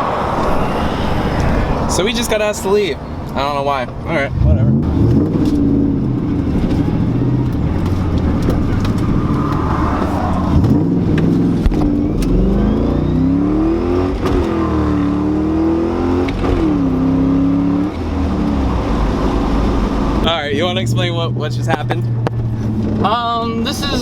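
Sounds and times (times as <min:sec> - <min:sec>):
car engine accelerating hard: 0:00.0 - 0:24.0.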